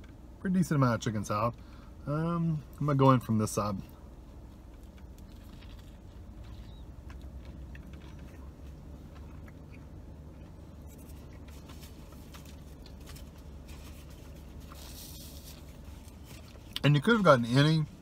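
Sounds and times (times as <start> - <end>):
steady low hum: 0.0 - 18.0
chewing with mouth noises: 4.7 - 16.8.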